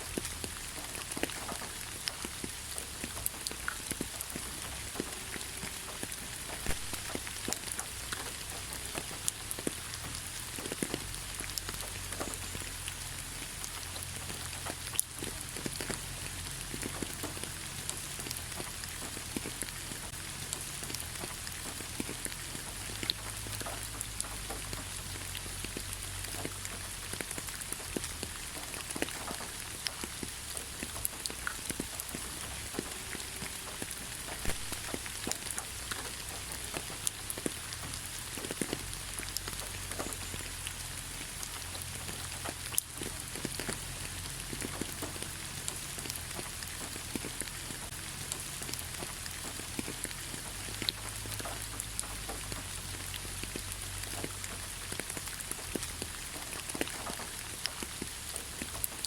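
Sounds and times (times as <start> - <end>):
raindrops ticking on surfaces: 0.0 - 59.0
steady rain: 0.0 - 59.0.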